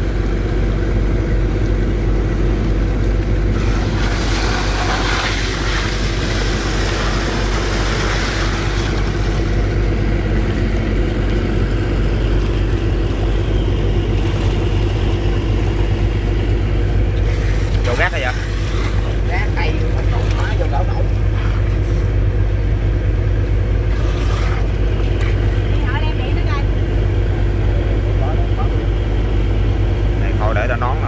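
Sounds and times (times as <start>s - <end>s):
boat engine running under load: 0.0s - 31.0s
rushing hiss: 3.5s - 8.8s.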